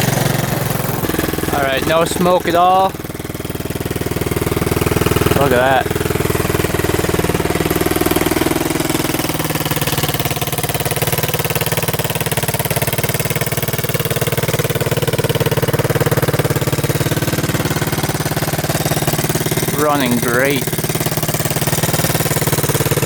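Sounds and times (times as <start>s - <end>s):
motorbike engine idling: 0.0s - 23.0s.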